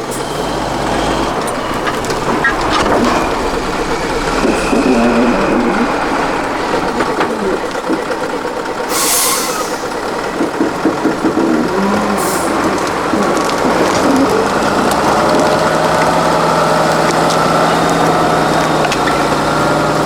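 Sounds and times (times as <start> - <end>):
diesel truck engine running: 0.0 - 20.0
compressed air hiss: 8.9 - 10.1.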